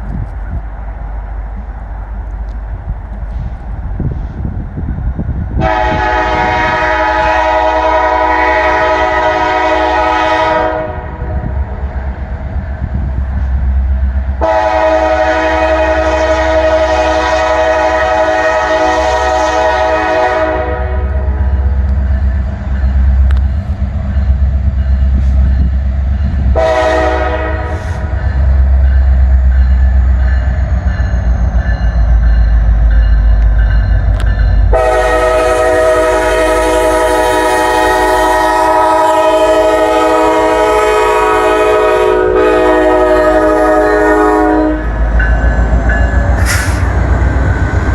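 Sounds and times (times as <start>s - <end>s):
diesel engines rumbling: 0.0s - 47.9s
train air horn blasts: 5.6s - 11.6s, 14.4s - 21.7s, 26.5s - 28.2s, 34.7s - 45.0s, 46.4s - 47.0s.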